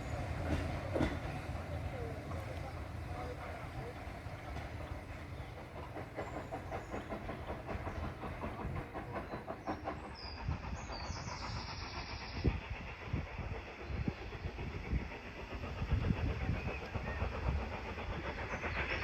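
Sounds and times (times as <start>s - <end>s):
wheels clicking over rail joints: 0.0s - 9.9s
hiss: 0.0s - 19.0s
train rumbling: 0.0s - 19.0s.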